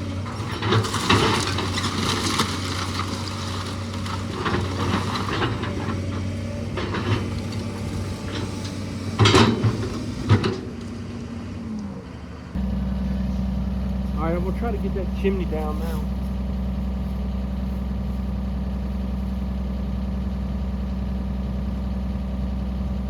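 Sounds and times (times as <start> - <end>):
wood and debris cracking: 0.0 - 11.0.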